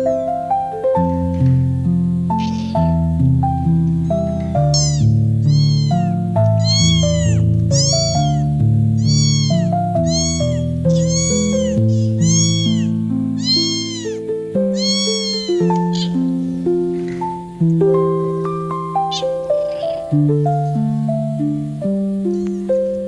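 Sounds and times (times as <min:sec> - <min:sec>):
kitten meowing: 0:02.3 - 0:03.1, 0:04.3 - 0:16.2, 0:19.0 - 0:20.2.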